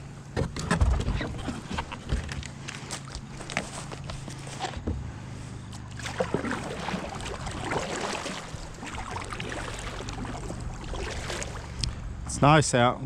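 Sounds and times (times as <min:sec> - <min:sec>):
paddle dipping and dripping: 0:05.7 - 0:12.0
small splashes: 0:05.7 - 0:12.0
paddle knocking against hull: 0:06.0 - 0:11.8.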